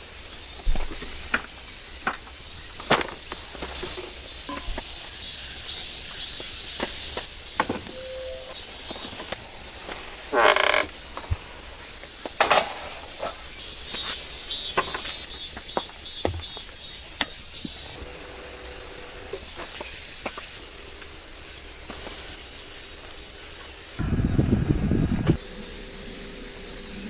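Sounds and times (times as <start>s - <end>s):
heavy rain hissing: 17.0s - 27.0s.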